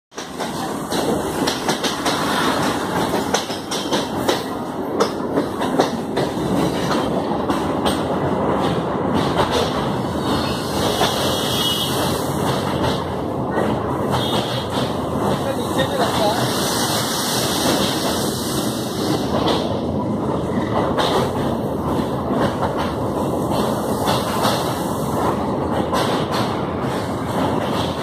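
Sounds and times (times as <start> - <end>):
wheels clattering over rails: 0.1 - 16.8
train rumbling on track: 0.1 - 28.0.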